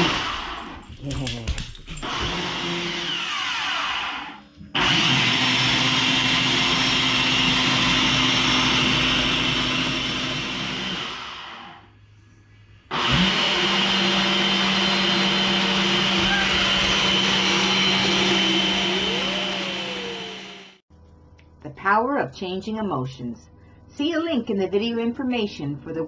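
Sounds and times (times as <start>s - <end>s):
kitchen blender running: 2.0s - 11.8s, 12.9s - 20.8s.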